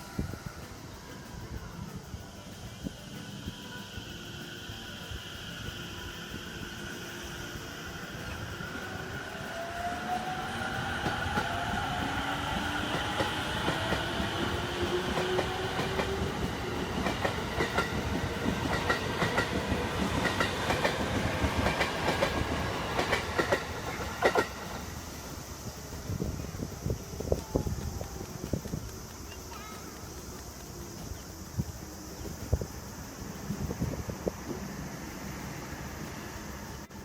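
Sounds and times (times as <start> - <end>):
train wheels clicking over rail joints: 0.0 - 36.9
electric train motor whine: 0.1 - 28.8.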